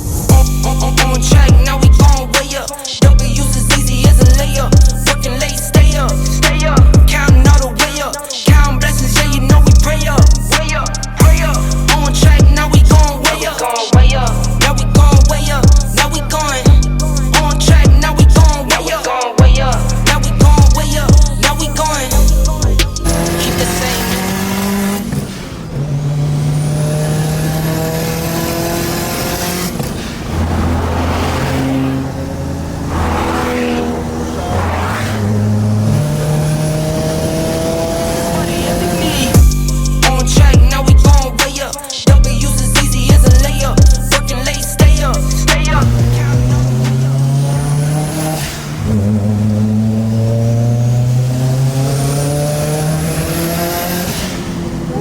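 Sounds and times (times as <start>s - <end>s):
hip hop backing track: 0.0s - 25.0s, 35.3s - 48.8s
car engines revving: 0.0s - 40.2s, 44.4s - 55.0s.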